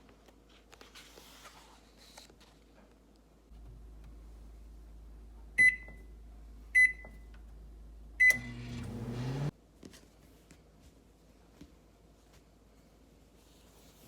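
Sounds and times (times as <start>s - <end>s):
microwave oven humming: 3.5s - 9.5s
microwave keypad beeping: 5.6s - 6.1s, 6.8s - 7.3s, 8.2s - 8.9s.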